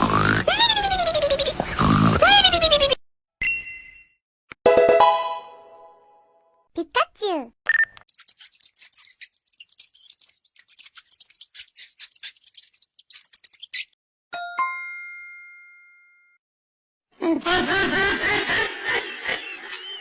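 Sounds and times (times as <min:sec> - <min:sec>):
bright bell ding: 0:04.7 - 0:05.9.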